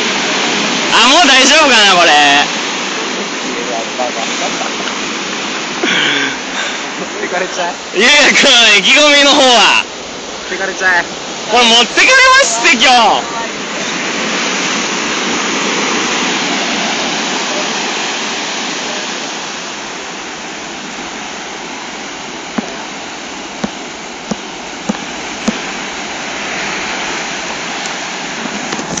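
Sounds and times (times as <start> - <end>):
storm surf rushing: 0.0 - 29.0
short sharp knocks: 23.6 - 25.6.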